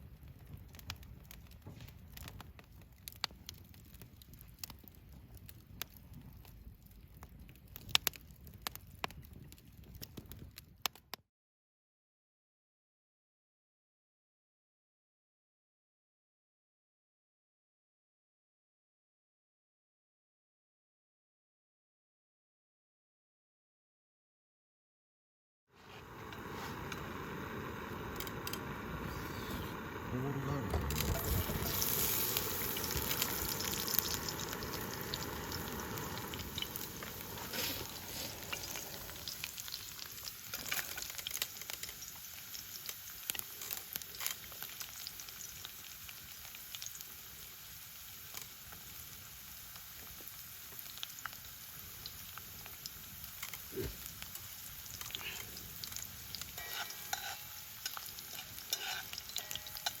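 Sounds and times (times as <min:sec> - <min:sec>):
small pops and crackles: 0:00.0 - 0:11.2, 0:28.0 - 0:29.8, 0:30.5 - 0:47.2, 0:48.1 - 1:00.0
food sizzling in a pan: 0:25.8 - 1:00.0.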